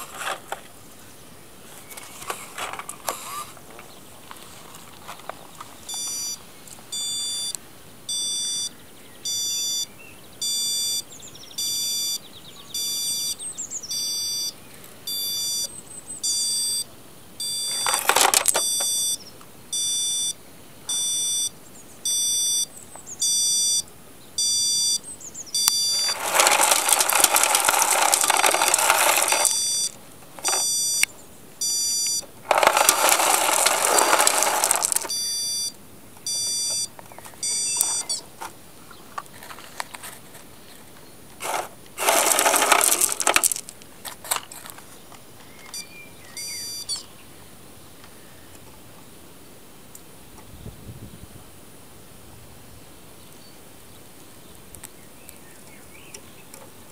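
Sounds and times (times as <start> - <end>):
electronic beeper beeping: 6.0 - 6.4, 7.0 - 8.7, 9.3 - 11.0, 11.6 - 12.2, 12.8 - 16.8, 17.4 - 17.9, 18.6 - 19.2, 19.8 - 21.5, 22.1 - 23.8, 24.4 - 25.0, 25.6 - 27.1, 29.2 - 33.5, 34.1 - 38.2.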